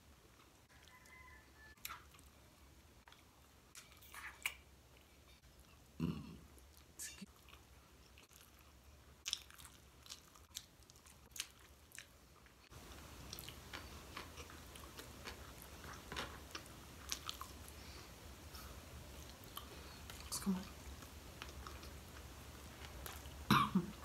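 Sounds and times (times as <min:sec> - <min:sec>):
wet chewing mouth clicks and smacks: 0:06.6 - 0:12.6.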